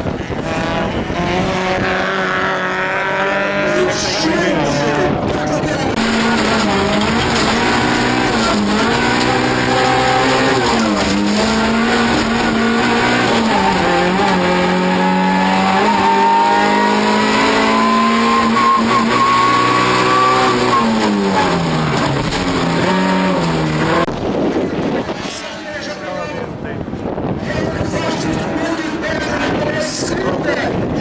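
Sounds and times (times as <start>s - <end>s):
racing car engine from inside: 0.3s - 24.1s.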